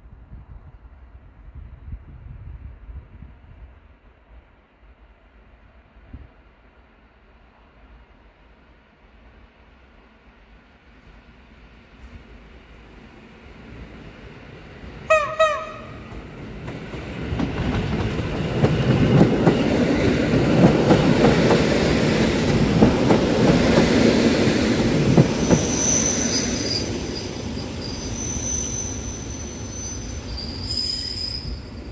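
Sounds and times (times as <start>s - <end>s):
train wheels rumbling on rail: 0.2s - 31.9s
train horn: 15.1s - 16.2s
high-pitched wheel squeal: 25.4s - 31.9s.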